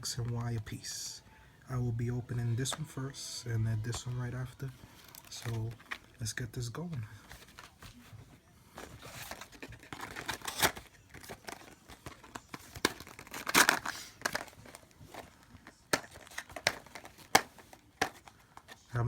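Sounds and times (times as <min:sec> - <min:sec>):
packaging being torn and crinkled: 0:09.0 - 0:18.6.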